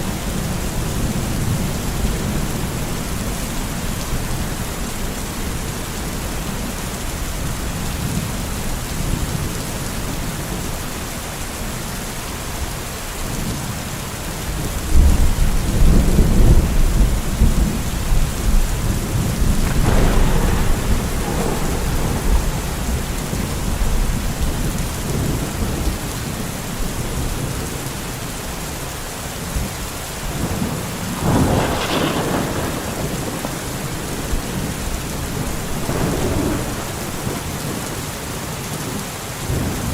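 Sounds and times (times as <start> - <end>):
heavy rain: 0.0 - 39.9
sharp thunder claps: 14.9 - 26.0, 30.4 - 38.0
rolling thunder rumble: 14.9 - 27.8, 29.6 - 38.5.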